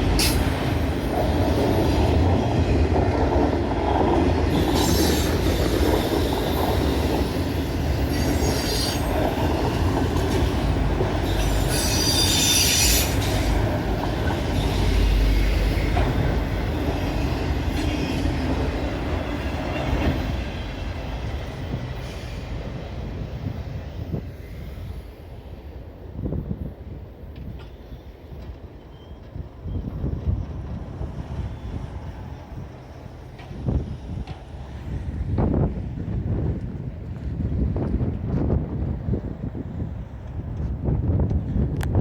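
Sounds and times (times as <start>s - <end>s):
freight train wheels rumbling: 0.0s - 42.0s
high-pitched wheel squeals: 11.2s - 13.6s.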